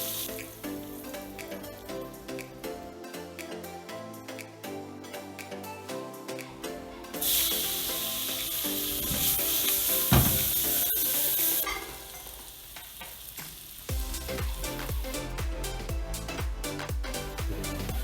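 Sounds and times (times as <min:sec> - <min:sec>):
upbeat electronic music: 0:00.0 - 0:13.0, 0:13.8 - 0:18.0
food sizzling in a pan: 0:07.2 - 0:13.9.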